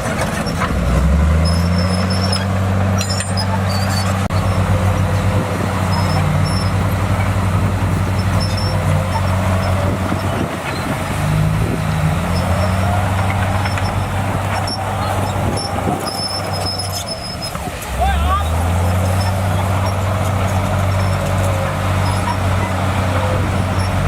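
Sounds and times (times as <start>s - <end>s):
bulldozer diesel engine running: 0.0s - 24.0s
faint squeal: 12.3s - 17.6s.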